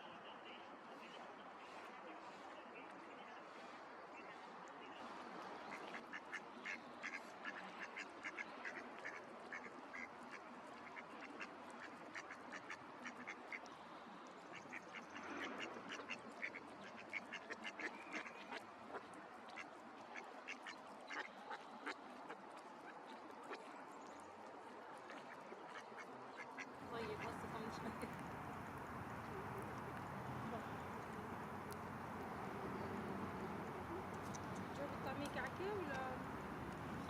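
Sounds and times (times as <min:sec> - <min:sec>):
ducks quacking: 0:05.8 - 0:13.6, 0:25.8 - 0:37.0
faint steady hiss: 0:26.7 - 0:37.0.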